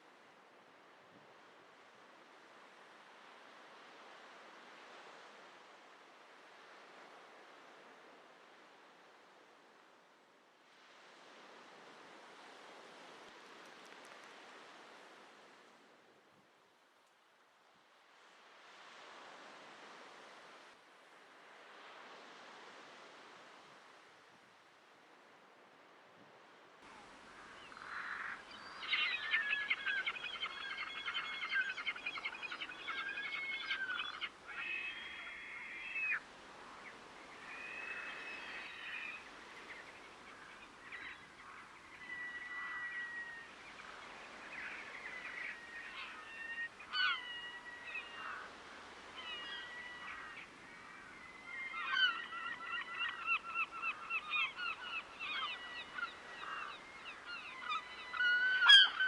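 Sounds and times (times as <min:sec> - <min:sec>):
waterbirds calling: 0:26.9 - 0:59.0.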